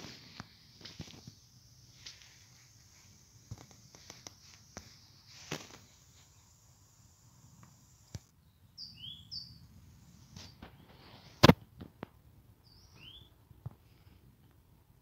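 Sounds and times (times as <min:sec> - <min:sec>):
small bird chirping: 0:01.2 - 0:11.4, 0:12.6 - 0:13.4.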